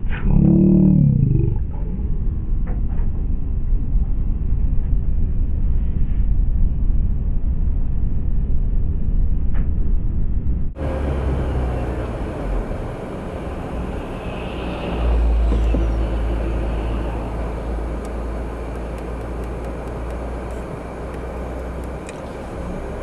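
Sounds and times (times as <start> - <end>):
heavy vehicle rumbling past: 10.7 - 23.0
hiss of passing vehicles: 10.8 - 23.0.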